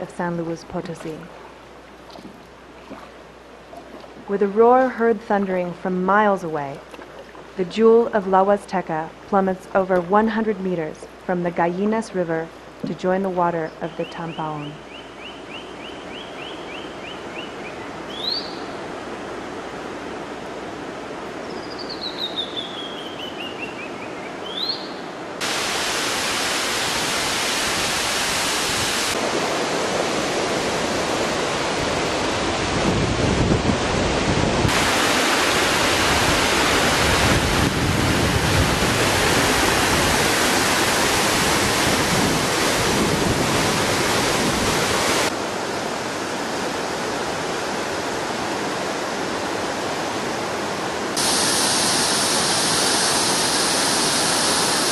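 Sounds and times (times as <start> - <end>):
waterfall roaring: 25.3 - 54.9.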